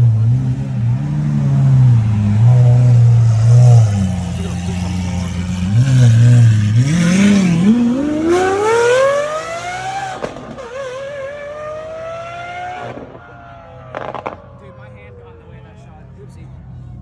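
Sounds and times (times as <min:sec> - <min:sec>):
car engine revving and accelerating: 0:00.0 - 0:13.2.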